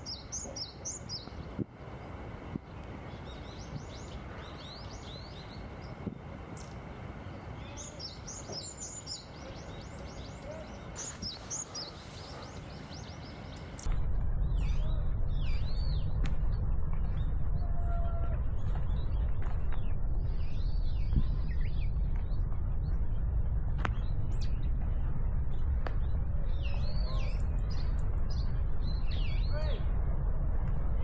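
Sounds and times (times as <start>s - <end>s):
birds giving swooping calls: 0.0s - 13.9s
small songbirds chirping: 0.0s - 13.9s
steady background noise: 0.0s - 14.6s
loud low steady noise: 0.0s - 17.6s.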